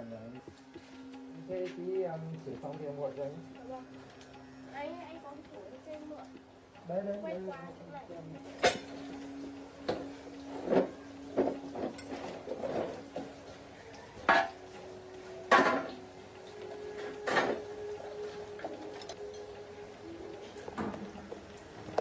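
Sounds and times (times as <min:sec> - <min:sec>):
objects knocking and clattering: 0:09.8 - 0:13.6, 0:14.2 - 0:14.6, 0:15.4 - 0:16.0, 0:16.8 - 0:17.9.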